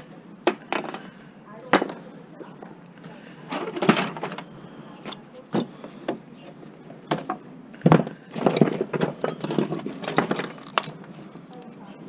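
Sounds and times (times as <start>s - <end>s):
scrap metal clanking: 7.1s - 11.2s.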